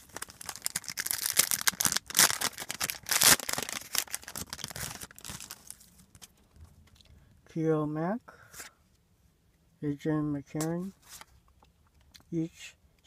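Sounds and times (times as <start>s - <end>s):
plastic wrapper tearing and crinkling: 0.0s - 6.3s.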